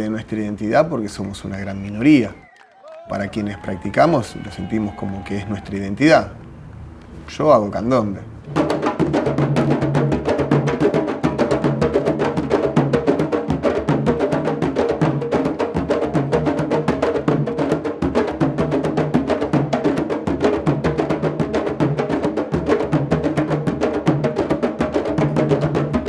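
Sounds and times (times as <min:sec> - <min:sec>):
drums playing dense rhythm: 0:07.3 - 0:26.0.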